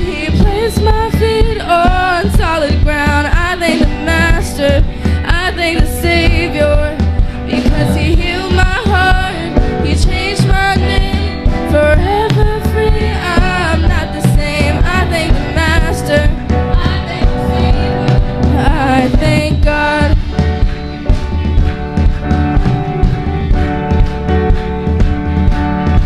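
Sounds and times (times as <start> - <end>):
gospel band with singers: 0.0 - 26.0.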